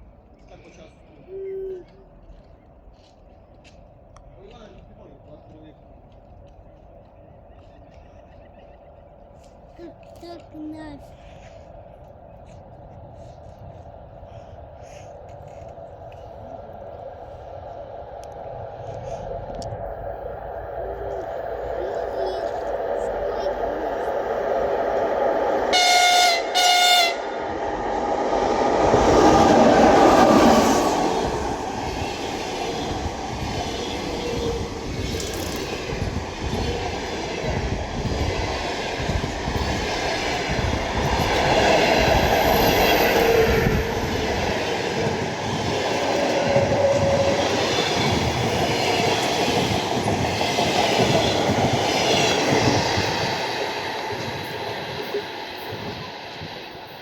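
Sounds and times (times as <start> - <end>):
train wheels clickety-clack: 9.4 - 16.5, 27.8 - 57.0
locomotive horn blasts: 25.7 - 27.4.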